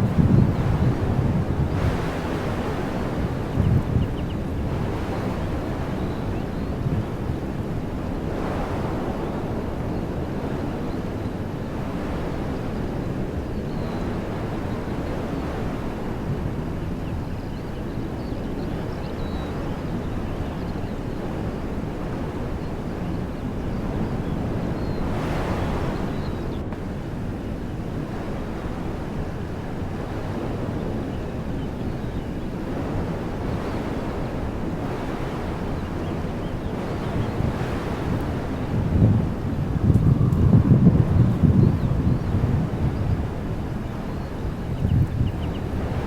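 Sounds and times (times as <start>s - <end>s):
wind buffeting microphone: 0.0s - 46.0s
wind rushing through trees: 0.0s - 46.0s.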